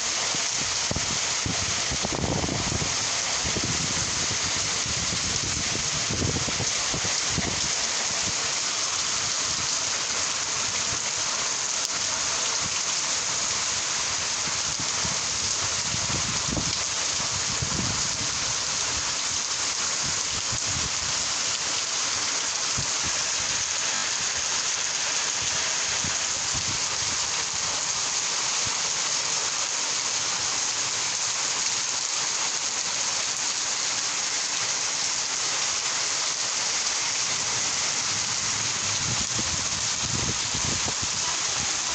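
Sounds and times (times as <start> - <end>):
steady rain: 0.0 - 41.9.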